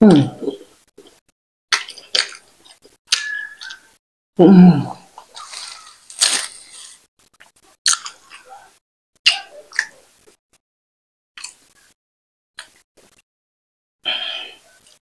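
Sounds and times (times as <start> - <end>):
wet chewing and mouth smacks: 1.0 - 3.8, 5.2 - 8.4
plastic wrap rustling: 5.3 - 7.1.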